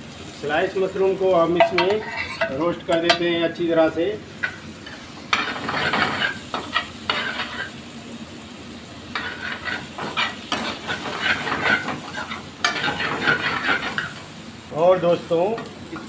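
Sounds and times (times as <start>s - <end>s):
mushrooms frying in oil: 0.0s - 16.0s
steel ladle scraping a pan: 1.6s - 2.6s, 5.3s - 7.7s, 9.2s - 14.2s.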